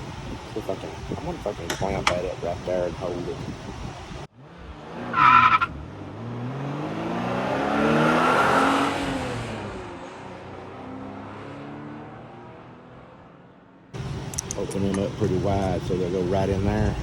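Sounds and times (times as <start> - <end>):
car engine speeding up: 4.3 - 14.0.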